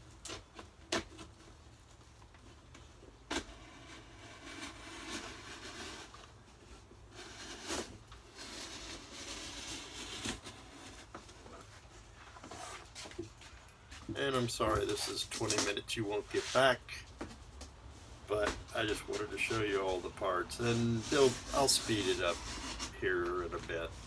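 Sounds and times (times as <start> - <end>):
cardboard rustling and scraping: 0.0 - 24.0.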